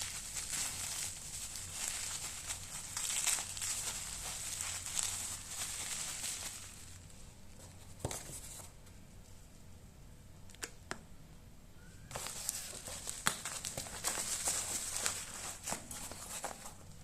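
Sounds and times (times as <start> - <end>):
packaging crinkling and rustling: 0.0 - 7.1, 12.1 - 17.0.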